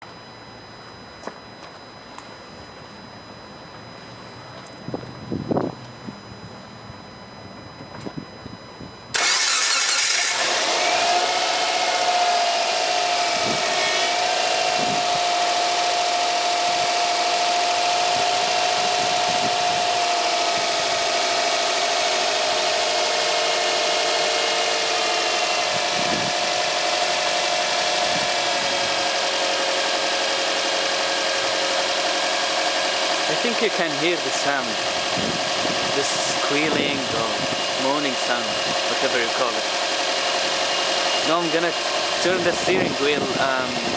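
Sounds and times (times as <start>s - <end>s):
power steering whine: 0.0s - 43.9s
car engine idling: 9.1s - 43.9s.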